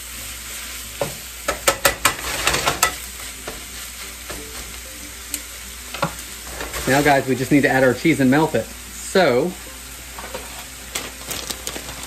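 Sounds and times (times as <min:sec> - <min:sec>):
meat and vegetables sizzling in skillet: 0:00.0 - 0:12.0
tongs clacking against pan: 0:01.0 - 0:03.7.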